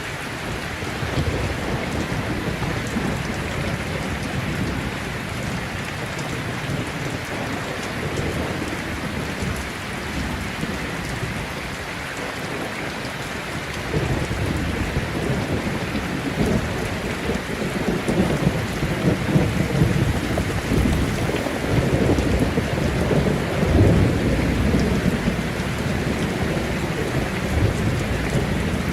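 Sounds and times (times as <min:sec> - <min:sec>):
heavy rain: 0:00.0 - 0:28.9
rolling thunder: 0:13.9 - 0:28.9.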